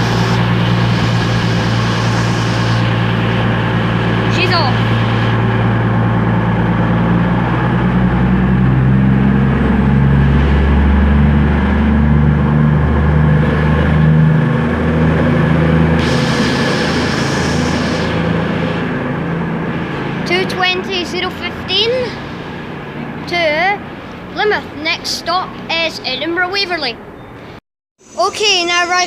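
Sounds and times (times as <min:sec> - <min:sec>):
hiss: 0:00.0 - 0:03.5, 0:16.0 - 0:18.9
diesel train engine droning: 0:00.0 - 0:29.0.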